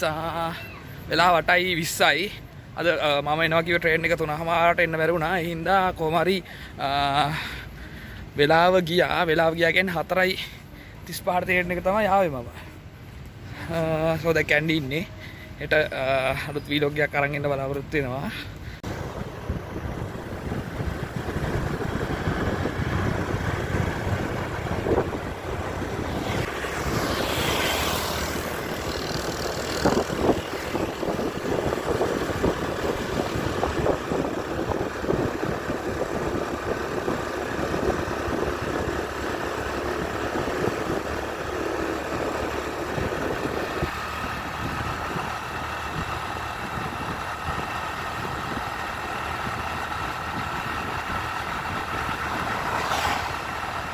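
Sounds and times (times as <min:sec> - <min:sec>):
road noise: 0:00.0 - 0:53.9
vehicle engine running: 0:18.5 - 0:53.9
whoosh: 0:52.5 - 0:53.9.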